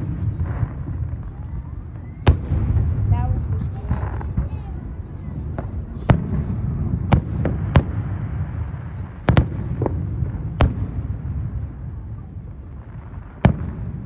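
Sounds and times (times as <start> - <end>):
fireworks bangs: 0.0 - 14.0
low rumble: 0.7 - 8.8.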